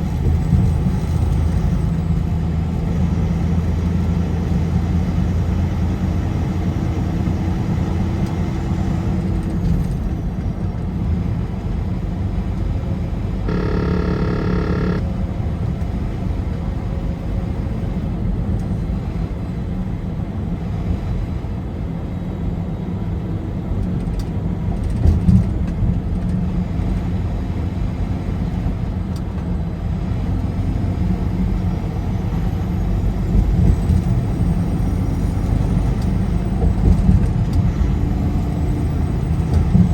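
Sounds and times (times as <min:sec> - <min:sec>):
engine and tyre rumble: 0:00.0 - 0:39.9
brief pitched tone: 0:13.5 - 0:15.0.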